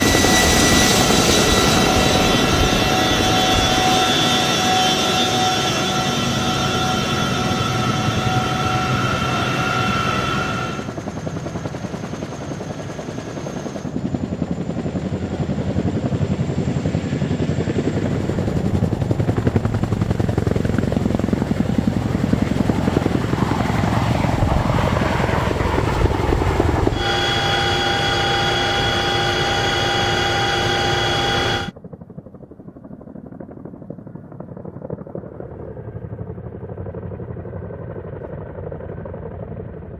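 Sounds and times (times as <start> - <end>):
high turbine whine: 0.0 - 11.2, 25.5 - 31.7
helicopter rotor chop: 0.0 - 37.7.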